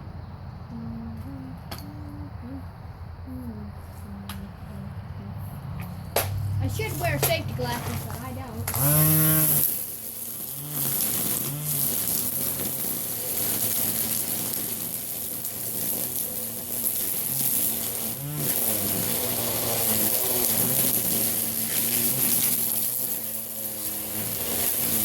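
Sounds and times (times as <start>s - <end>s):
string trimmer buzzing: 5.8s - 25.0s.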